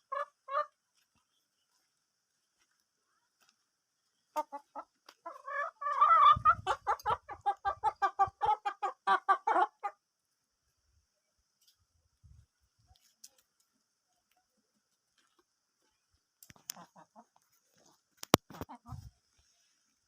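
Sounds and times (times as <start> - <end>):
hen clucking: 0.0 - 0.8, 4.3 - 10.0, 16.5 - 19.2.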